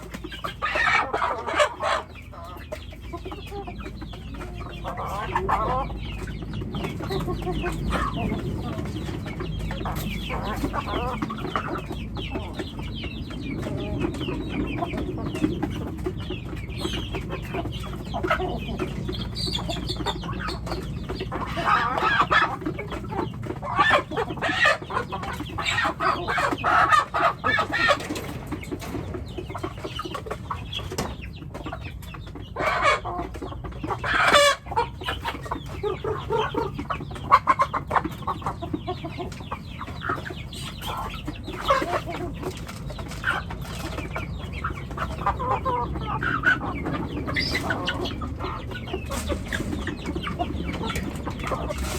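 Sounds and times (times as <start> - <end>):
chickens clucking: 0.0 - 51.9.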